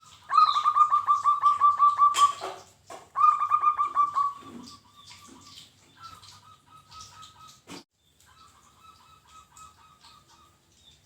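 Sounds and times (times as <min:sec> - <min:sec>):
dove calling: 0:00.1 - 0:07.6.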